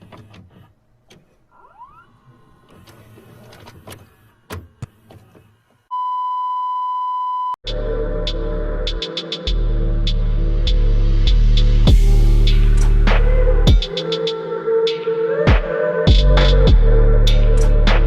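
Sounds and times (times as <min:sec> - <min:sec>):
loud music with heavy beat: 0:07.7 - 0:14.4, 0:15.5 - 0:18.0.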